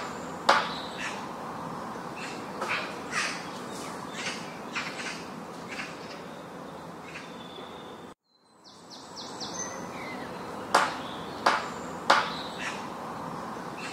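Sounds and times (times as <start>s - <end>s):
birds calling: 0.0s - 13.9s
outdoor background hiss: 0.0s - 13.9s.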